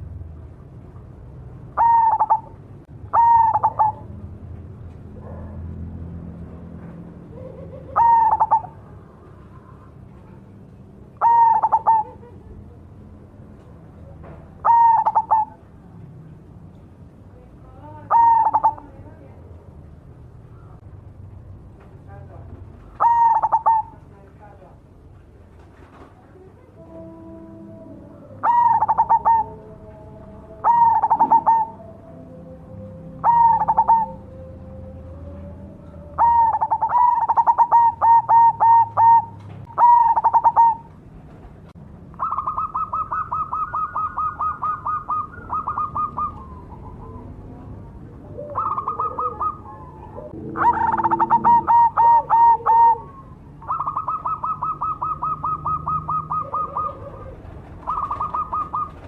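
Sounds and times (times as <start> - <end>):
dove cooing: 1.7 - 4.3, 7.2 - 12.6, 14.0 - 15.7, 17.8 - 19.0, 23.0 - 24.0, 26.6 - 41.0, 42.2 - 59.0.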